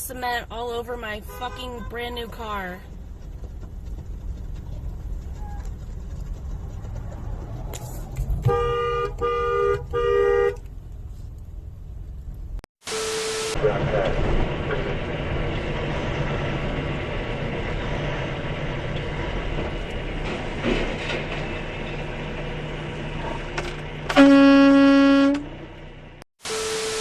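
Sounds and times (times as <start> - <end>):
vehicle running with low hum: 0.0 - 27.0
loud horn blast: 1.3 - 2.2, 8.4 - 10.7, 12.8 - 15.0, 24.1 - 25.7, 26.4 - 27.0.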